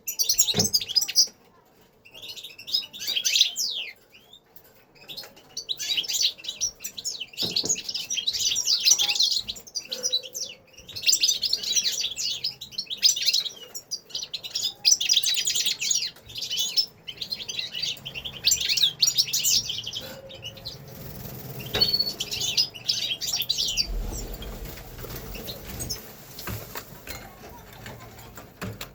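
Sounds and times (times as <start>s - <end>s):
finches twittering: 14.3s - 26.5s.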